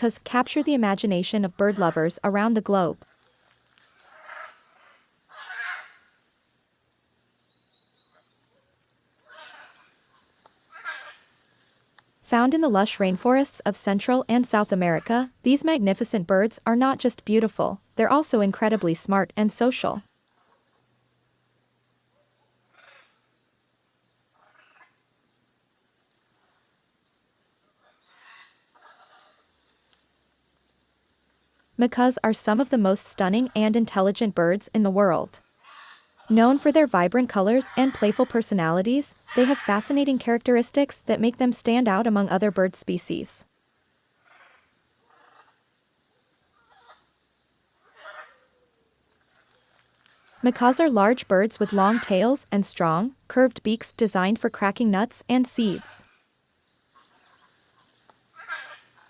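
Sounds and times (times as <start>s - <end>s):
faint bird calls and chirps: 0.0s - 21.0s, 27.8s - 30.1s, 31.3s - 43.3s, 46.5s - 59.0s
faint outdoor ambience: 0.0s - 59.0s
birds giving harsh calls: 31.8s - 43.3s, 49.3s - 56.0s.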